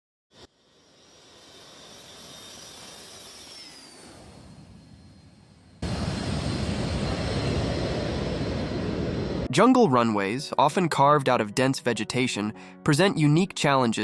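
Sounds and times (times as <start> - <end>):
high engine whine: 0.4 - 9.5
airplane engine noise: 0.4 - 10.2.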